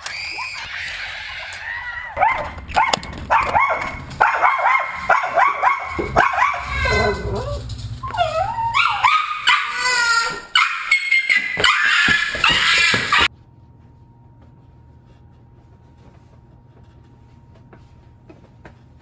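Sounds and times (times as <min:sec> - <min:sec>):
dog yipping and barking: 0:00.1 - 0:13.3.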